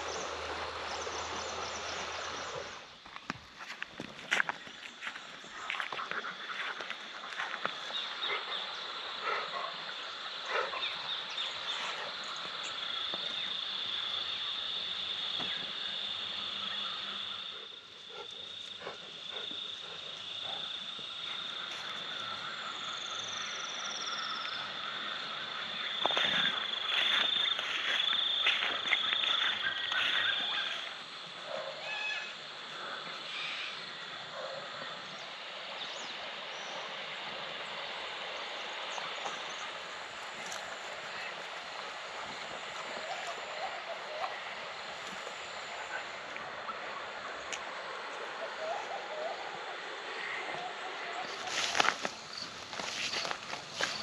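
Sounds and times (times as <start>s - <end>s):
frogs croaking: 0.0s - 54.0s
night insects droning: 0.0s - 54.0s.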